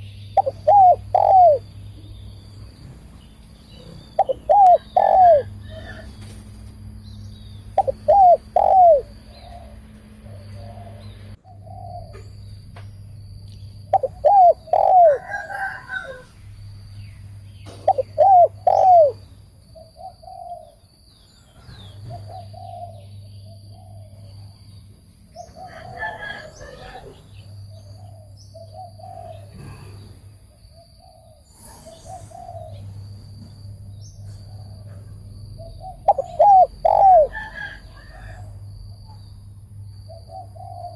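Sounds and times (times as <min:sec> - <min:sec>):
dove cooing: 0:00.0 - 0:01.8, 0:03.8 - 0:06.3, 0:07.7 - 0:12.2, 0:13.9 - 0:16.3, 0:17.8 - 0:19.2, 0:19.8 - 0:20.8, 0:21.7 - 0:23.1, 0:28.0 - 0:30.0, 0:35.6 - 0:38.5, 0:40.1 - 0:40.9.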